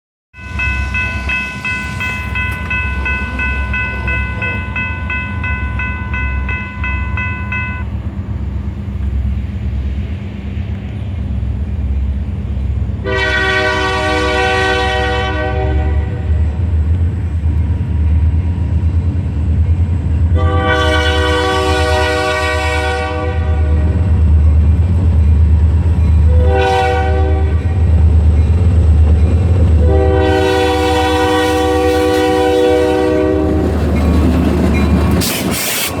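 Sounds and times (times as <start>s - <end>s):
steady high tone: 0.4s - 8.0s
diesel locomotives rumbling: 0.4s - 36.0s
locomotive air horn blasts: 13.0s - 16.4s, 20.3s - 24.1s, 26.3s - 27.8s, 29.8s - 33.6s.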